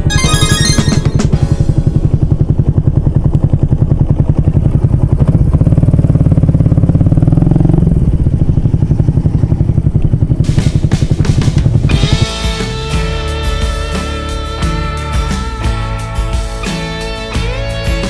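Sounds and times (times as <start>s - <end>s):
music: 0.0s - 2.4s, 10.5s - 18.0s
motorcycle engine revving: 1.4s - 12.5s.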